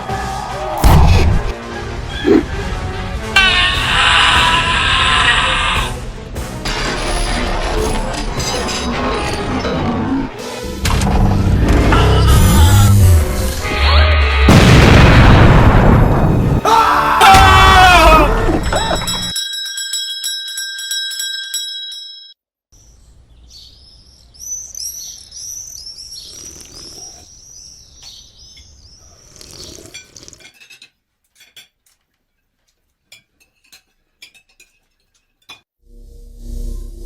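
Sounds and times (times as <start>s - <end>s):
bell-like ring: 18.6s - 22.4s.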